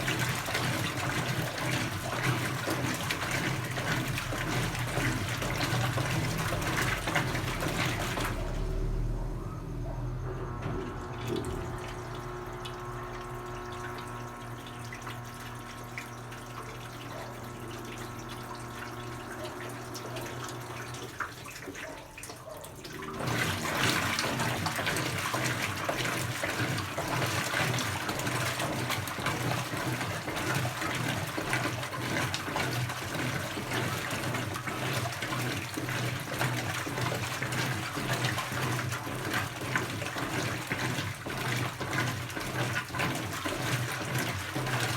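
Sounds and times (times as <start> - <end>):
washing machine motor hum: 0.0 - 44.9
water rushing into tub: 0.0 - 44.9.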